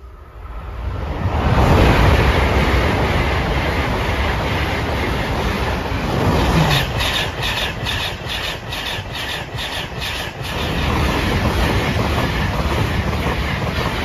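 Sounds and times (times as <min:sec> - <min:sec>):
train rushing past: 0:00.0 - 0:14.0
wheels clattering over rail joints: 0:06.0 - 0:14.0.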